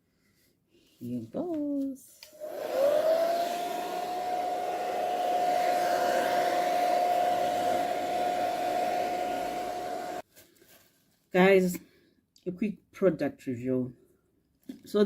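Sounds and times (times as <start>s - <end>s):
hair dryer motor whine: 2.2s - 10.2s
rush of blowing air: 2.4s - 10.2s.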